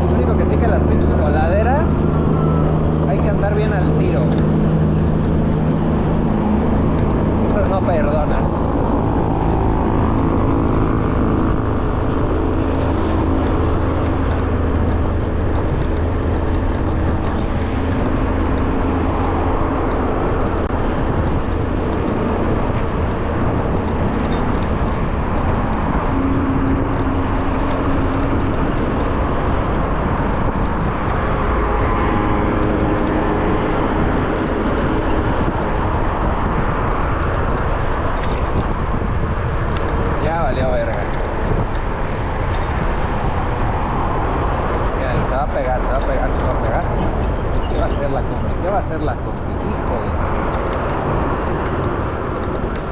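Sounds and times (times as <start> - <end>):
road traffic: 0.0 - 52.9
wind on microphone: 0.0 - 52.9.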